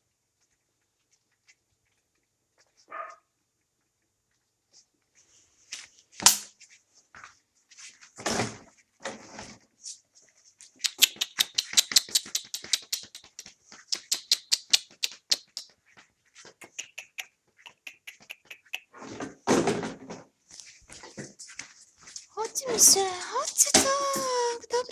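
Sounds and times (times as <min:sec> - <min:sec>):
puppies chewing wetly: 0:10.9 - 0:15.6, 0:16.6 - 0:18.9.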